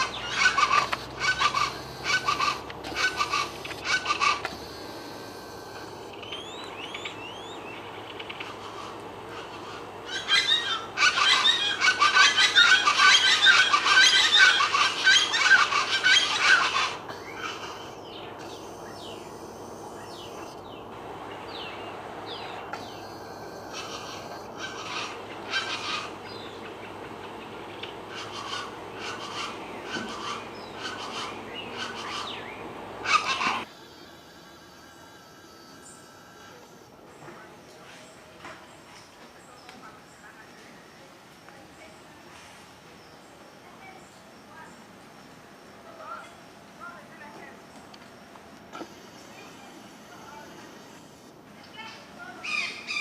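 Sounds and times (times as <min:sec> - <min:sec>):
birds chattering calls: 0:00.0 - 0:41.0
wild birds chirping: 0:00.0 - 0:53.0.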